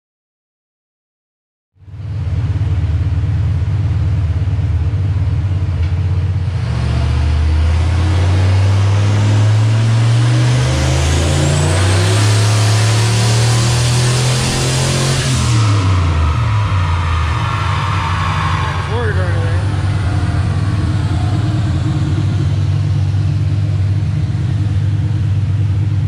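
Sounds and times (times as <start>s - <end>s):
engine droning on dyno: 1.8s - 26.0s
high turbo whistle: 10.8s - 24.8s.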